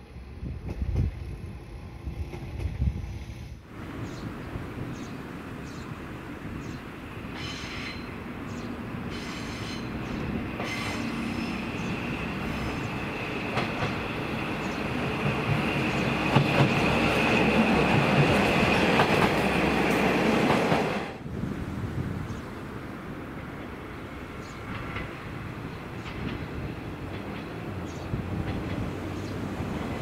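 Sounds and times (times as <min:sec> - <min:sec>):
diesel railcar engine: 0:00.0 - 0:30.0
high wheel squeal: 0:07.4 - 0:08.2, 0:09.0 - 0:17.8.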